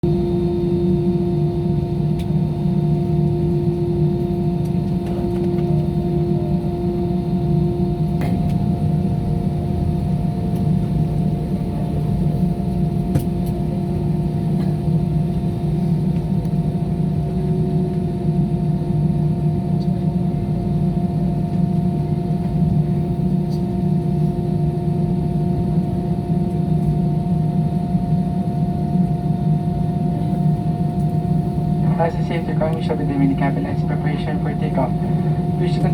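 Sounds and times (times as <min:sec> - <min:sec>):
airliner cabin drone: 0:00.0 - 0:35.9
steady whining tones: 0:22.2 - 0:35.9.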